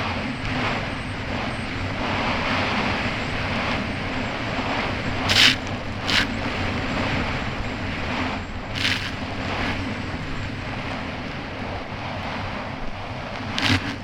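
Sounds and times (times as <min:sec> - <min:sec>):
jet ski engine running: 0:00.0 - 0:14.0
rush of wind and water: 0:00.0 - 0:14.0
water spray splashes: 0:05.3 - 0:06.7, 0:08.8 - 0:09.8, 0:13.6 - 0:14.0.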